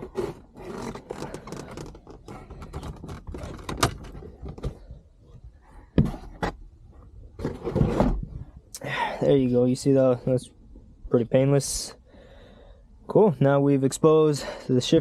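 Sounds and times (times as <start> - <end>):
plastic trim clicking and rattling: 0.8 - 4.8.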